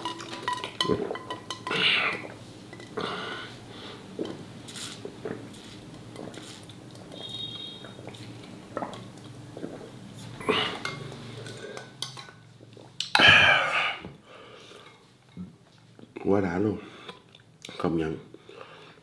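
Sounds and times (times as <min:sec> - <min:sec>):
utensils clinking against dish: 0:00.0 - 0:01.8.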